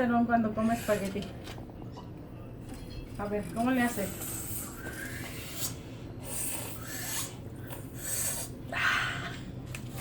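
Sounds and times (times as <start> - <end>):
wet slurping and chewing: 3.8 - 8.6.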